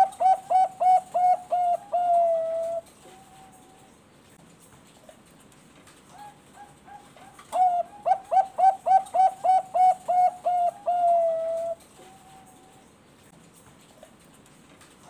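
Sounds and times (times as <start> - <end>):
dove cooing: 0.0 - 3.9, 6.1 - 12.9.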